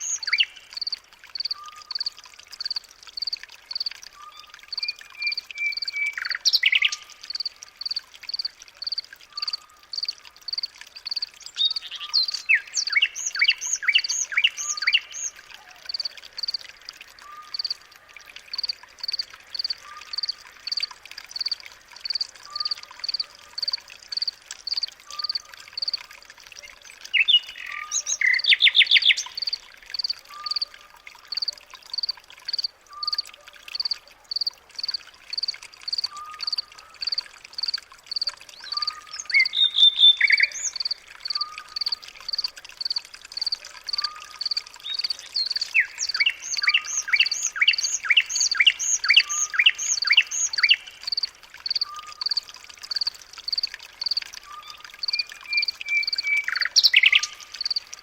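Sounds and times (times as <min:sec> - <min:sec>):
high bird chirps: 0:38.6 - 0:41.5, 0:43.9 - 0:51.0, 0:54.5 - 0:57.8.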